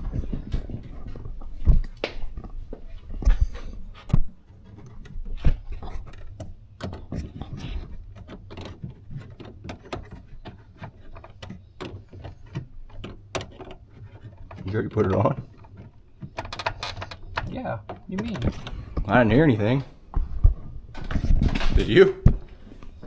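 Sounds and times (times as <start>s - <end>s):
tools and metal parts knocking: 5.8s - 18.8s.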